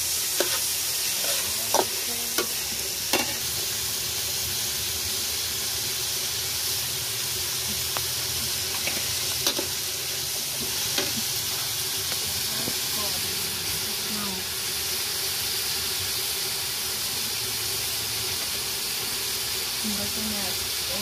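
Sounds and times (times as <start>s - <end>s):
spatula scraping a wok: 0.0s - 4.8s, 7.4s - 13.9s
meat sizzling in hot oil: 0.0s - 21.0s.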